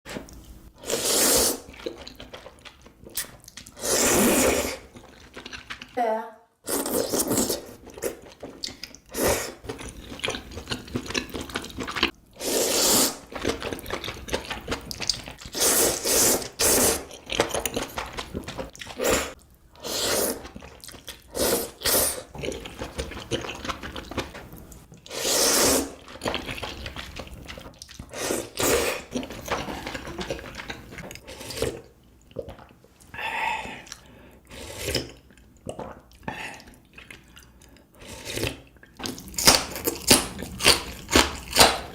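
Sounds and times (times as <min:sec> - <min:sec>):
wet slurping of noodles: 0:00.8 - 0:02.2, 0:03.7 - 0:05.2, 0:12.0 - 0:13.4, 0:15.4 - 0:17.1, 0:18.9 - 0:22.3, 0:25.1 - 0:26.1
chewing: 0:01.6 - 0:03.8, 0:04.7 - 0:06.0, 0:07.8 - 0:12.2, 0:13.2 - 0:15.6, 0:20.4 - 0:21.3, 0:22.3 - 0:25.2, 0:25.9 - 0:33.1, 0:34.9 - 0:41.9.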